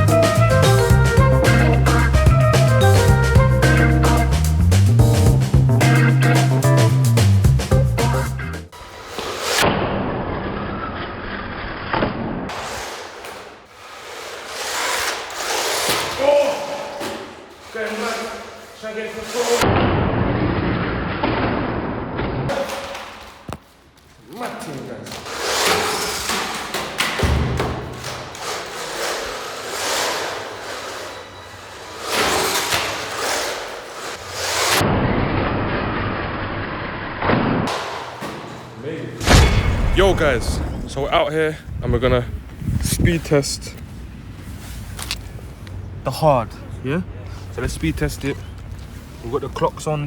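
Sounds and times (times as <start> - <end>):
toy truck tyres and motor rushing: 28.1 - 34.9
thump: 39.2 - 40.9
sharp knock: 39.2 - 41.0.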